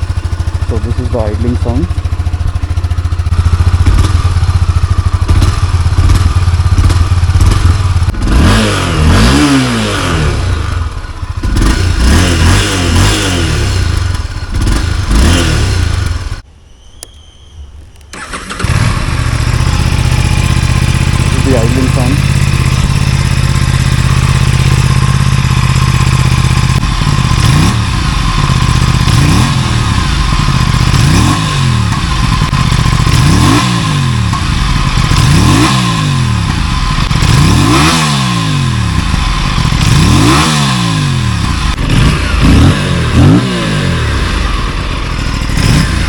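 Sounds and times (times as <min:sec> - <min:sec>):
motorcycle engine idling: 0:00.0 - 0:08.6, 0:09.5 - 0:46.0
motorcycle engine revving: 0:00.0 - 0:16.5, 0:18.1 - 0:46.0.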